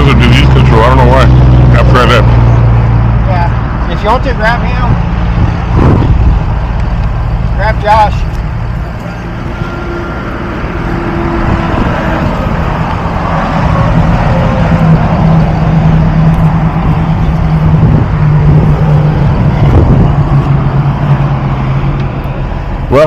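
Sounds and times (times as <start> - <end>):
vehicle engine with road noise: 0.0 - 23.0.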